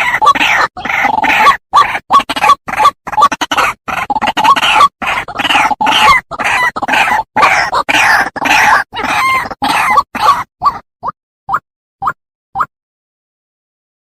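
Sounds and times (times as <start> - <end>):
bird harsh croaking calls: 0.0 - 10.8.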